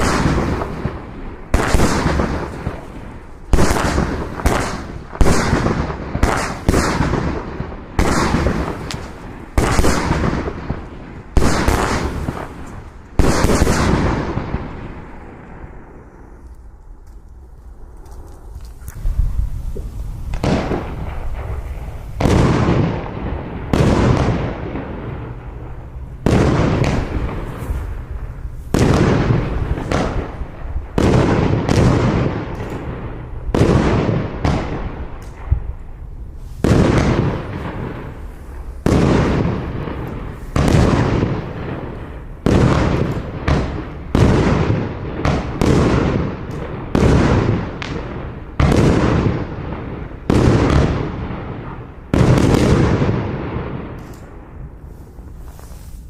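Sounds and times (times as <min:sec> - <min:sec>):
firework shots sharp reports: 0:00.0 - 0:16.4, 0:17.7 - 0:56.0
firework hissing bursts: 0:54.8 - 0:56.0.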